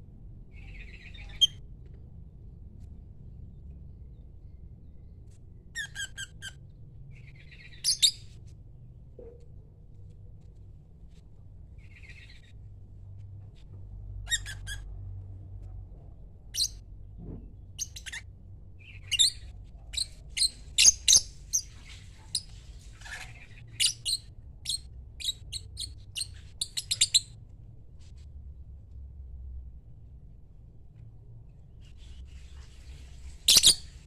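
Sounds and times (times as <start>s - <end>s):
lovebird chirping and squawking: 0.5s - 1.6s, 5.8s - 6.6s, 7.2s - 8.3s, 11.8s - 12.5s, 14.2s - 14.9s, 16.5s - 16.8s, 17.8s - 18.2s, 18.8s - 27.4s, 31.9s - 34.0s.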